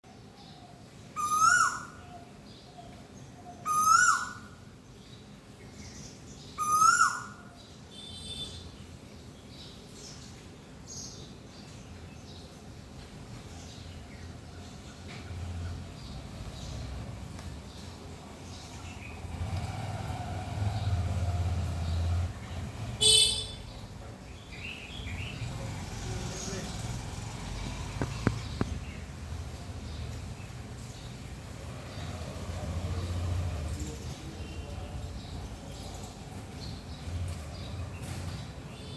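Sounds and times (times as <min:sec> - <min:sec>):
birds chirping: 0:00.2 - 0:38.9
bird calling loudly: 0:01.2 - 0:02.1, 0:03.6 - 0:04.6, 0:06.6 - 0:08.6, 0:23.0 - 0:23.7
faint bird chirps: 0:23.0 - 0:23.9.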